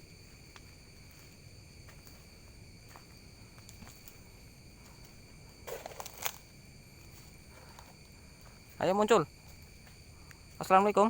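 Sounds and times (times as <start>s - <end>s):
night insects trilling: 0.0s - 11.0s.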